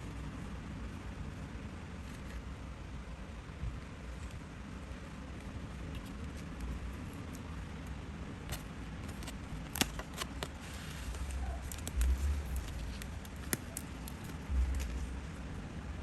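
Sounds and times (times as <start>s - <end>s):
paper clicks and ticks: 8.5s - 15.0s.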